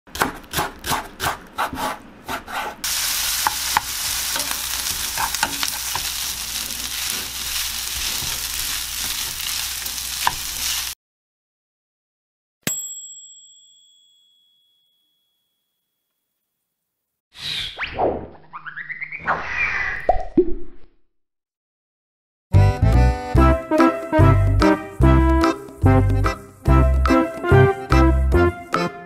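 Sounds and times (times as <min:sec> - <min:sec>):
knife chopping on wooden board: 0:00.1 - 0:02.8, 0:10.2 - 0:10.5
fried rice sizzling in oil: 0:02.8 - 0:11.0
bell ding: 0:12.6 - 0:16.0.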